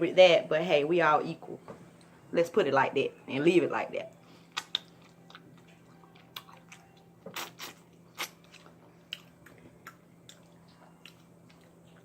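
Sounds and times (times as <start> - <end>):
crunchy chewing of fried chicken: 4.4 - 12.0
wet mouth sounds: 4.5 - 5.5, 6.3 - 12.0.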